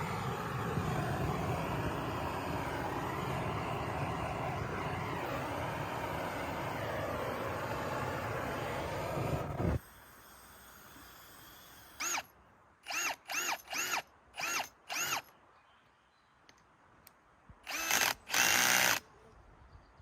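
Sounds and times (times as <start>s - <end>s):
steady rushing noise: 0.0s - 9.8s
power drill motor bursts: 9.8s - 15.3s, 17.7s - 19.0s.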